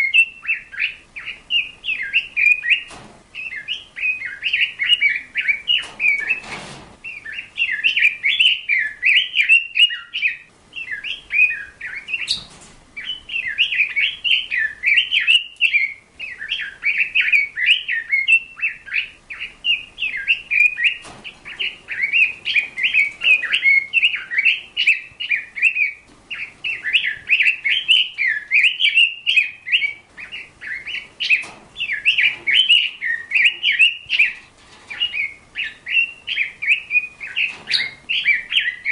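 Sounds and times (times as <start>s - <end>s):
bird chirping and warbling: 0.0s - 38.9s.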